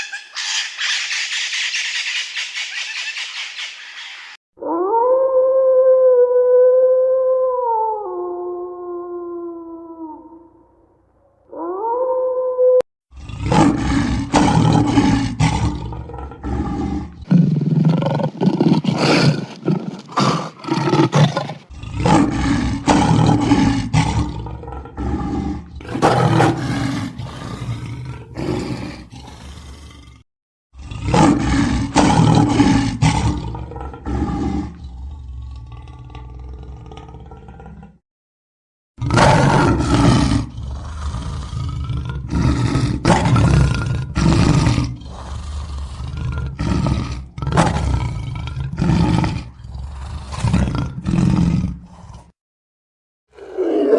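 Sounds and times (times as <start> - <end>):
big cat roaring and snarling: 11.5 - 38.0, 39.0 - 52.4, 53.3 - 53.9.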